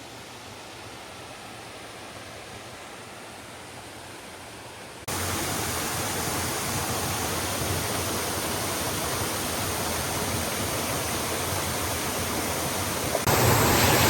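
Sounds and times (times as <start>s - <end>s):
waterfall pouring into pool: 5.1s - 14.0s.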